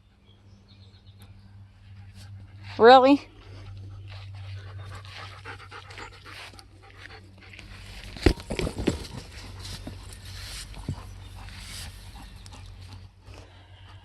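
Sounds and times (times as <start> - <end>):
dog panting: 0.2 - 14.0
thumps: 8.0 - 10.2.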